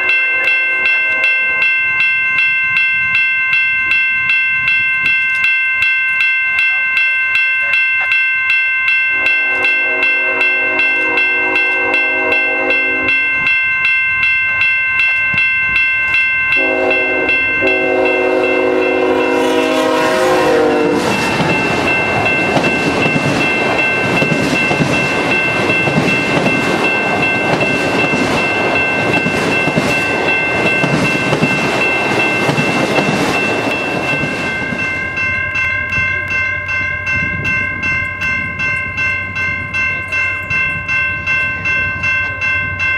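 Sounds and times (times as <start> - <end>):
locomotive horn blasts: 0.0 - 1.8, 9.1 - 13.4, 16.6 - 21.2
crossing bell ringing: 0.0 - 42.9
train rolling by rumbling: 9.1 - 42.9.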